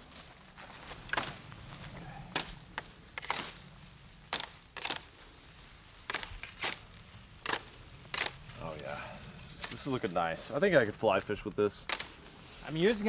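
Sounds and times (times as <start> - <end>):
blade chopping bamboo: 6.0 - 6.8, 7.4 - 8.4.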